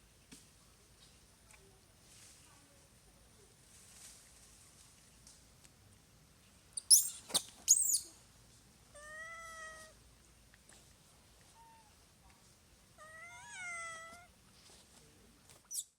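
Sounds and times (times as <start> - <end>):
baby monkey squealing: 6.8 - 8.0.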